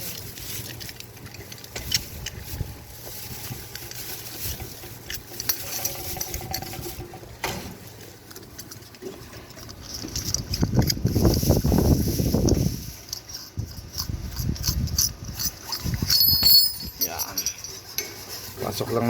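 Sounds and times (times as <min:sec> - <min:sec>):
metal fitting clicking and scraping: 0:03.7 - 0:11.4, 0:12.4 - 0:18.7.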